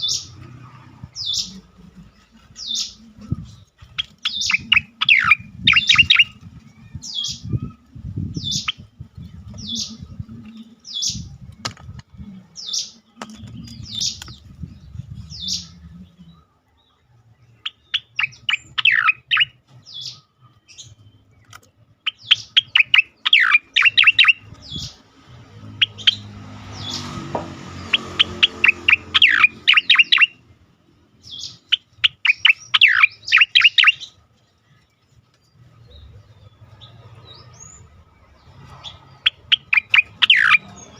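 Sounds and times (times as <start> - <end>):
bird singing sharp chirps: 2.5 - 11.6, 17.4 - 30.5, 31.2 - 34.2, 35.5 - 40.9.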